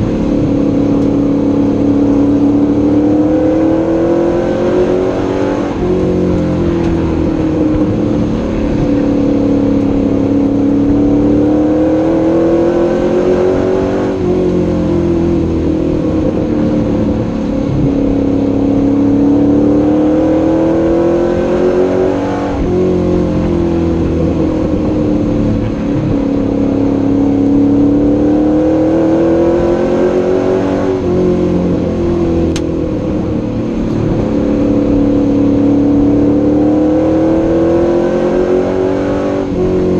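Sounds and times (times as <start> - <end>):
race truck engine accelerating: 0.0 - 39.9.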